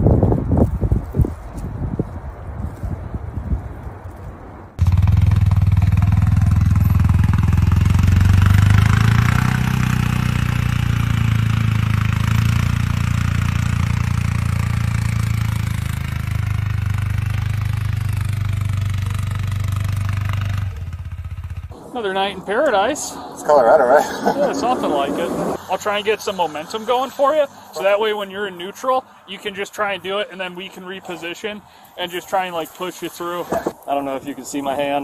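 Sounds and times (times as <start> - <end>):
vehicle engine running: 4.8 - 28.0.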